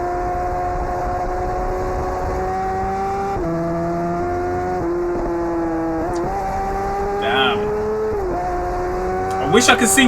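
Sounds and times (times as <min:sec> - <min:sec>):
motorcycle engines revving high: 0:02.9 - 0:10.0.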